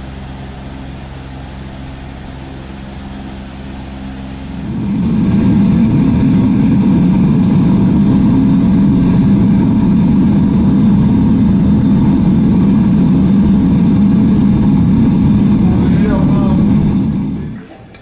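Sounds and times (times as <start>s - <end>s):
machine motor droning and whining: 0.0s - 18.0s.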